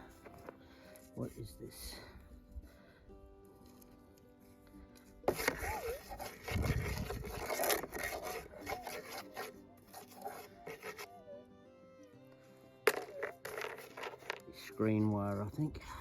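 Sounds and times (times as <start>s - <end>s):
dirt being scraped: 3.5s - 11.3s, 12.9s - 15.7s.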